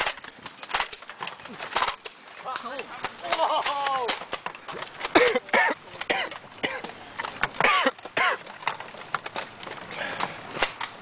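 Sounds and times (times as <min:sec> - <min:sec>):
man coughing: 0:05.1 - 0:06.9, 0:07.6 - 0:08.4.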